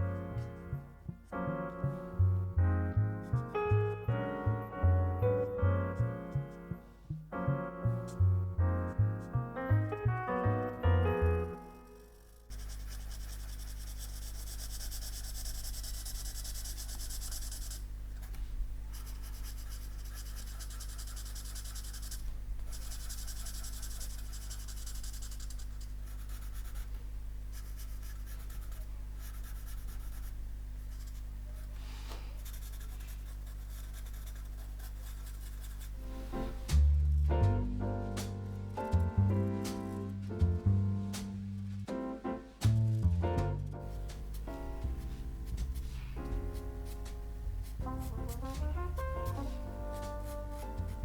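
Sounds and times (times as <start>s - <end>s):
steady low hum: 0.0s - 51.0s
pen nib scratching paper: 11.3s - 37.2s, 44.2s - 51.0s.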